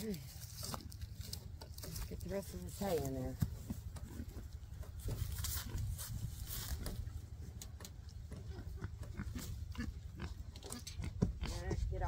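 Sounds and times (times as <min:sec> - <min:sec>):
rustling straw: 0:00.0 - 0:04.3, 0:05.0 - 0:07.2
pigs grunting: 0:08.3 - 0:11.8.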